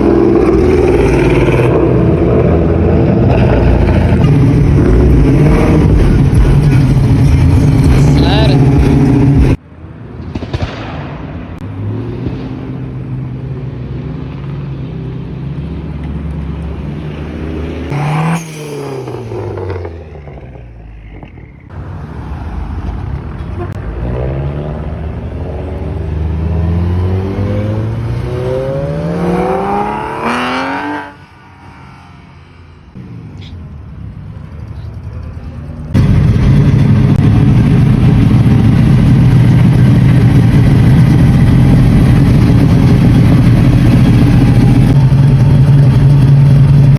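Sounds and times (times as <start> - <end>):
car engine revving: 0.0 - 9.6, 23.7 - 31.4, 34.8 - 46.9
rough engine running close: 0.0 - 9.6, 34.4 - 46.9.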